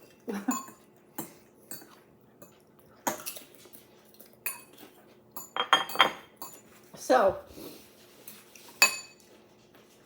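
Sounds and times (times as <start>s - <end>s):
cutlery clinking against dishes: 0.0s - 3.5s, 4.4s - 6.7s, 8.7s - 9.4s.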